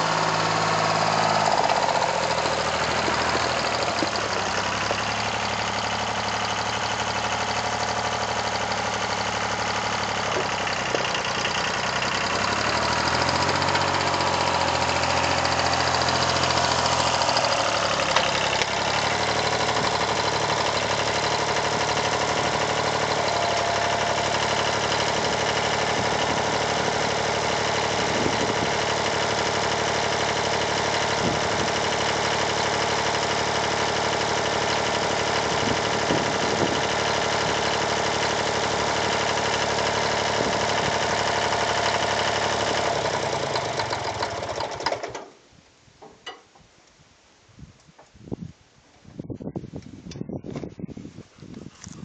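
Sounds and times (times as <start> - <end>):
tractor diesel engine running: 0.0 - 46.7.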